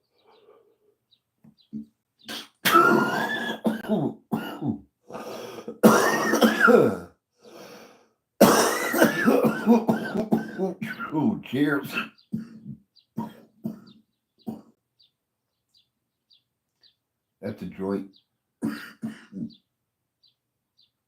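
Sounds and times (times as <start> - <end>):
man coughing hard: 2.3 - 4.9, 5.6 - 7.1, 8.4 - 14.7, 18.6 - 19.6.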